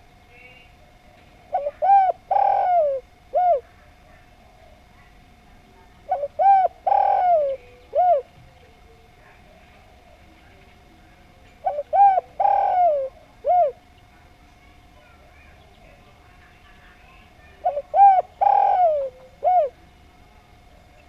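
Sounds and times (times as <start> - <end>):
dove cooing: 0.0 - 5.2, 6.0 - 10.4, 11.6 - 13.9, 15.3 - 19.9.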